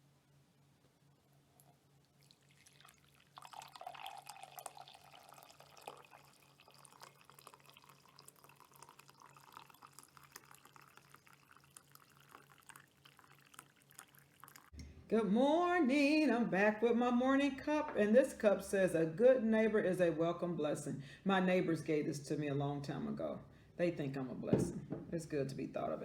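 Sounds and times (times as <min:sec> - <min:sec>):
drink pouring into a cup: 0:01.6 - 0:14.7.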